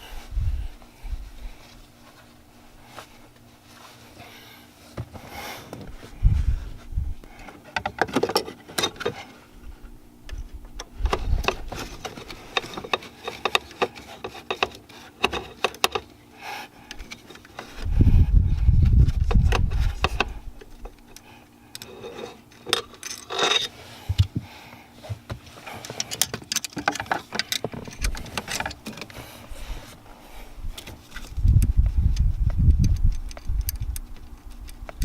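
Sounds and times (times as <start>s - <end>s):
metal tools clinking and rattling: 21.8s - 23.8s.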